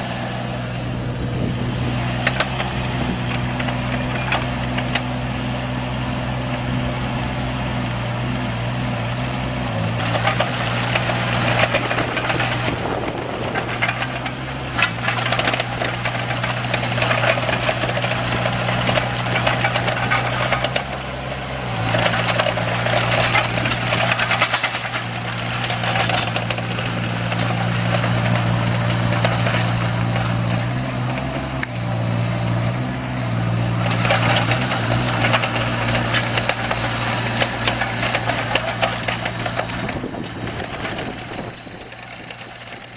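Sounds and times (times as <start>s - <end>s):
excavator diesel engine running: 0.0s - 42.9s
rough mechanical noise: 0.0s - 42.9s.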